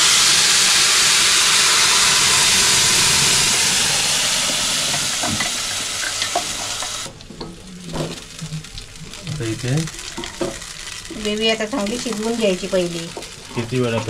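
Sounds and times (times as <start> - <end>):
paste sizzling in hot oil: 0.0 - 7.2, 8.1 - 14.0
faint stirring clicks: 6.0 - 14.0.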